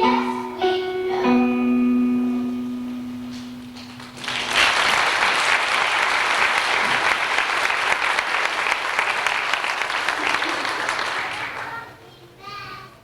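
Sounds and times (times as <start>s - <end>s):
held song note: 0.0s - 4.7s
audience applause: 3.9s - 11.9s.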